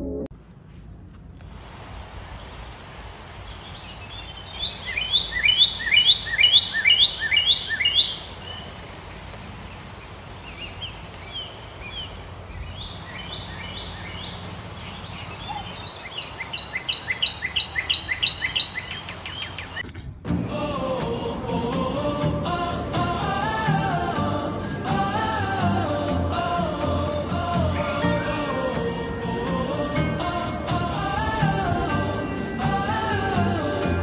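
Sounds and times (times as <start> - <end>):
steady background hiss: 0.4 - 34.0
bird calling high notes: 4.6 - 8.7, 15.0 - 19.8, 27.7 - 34.0.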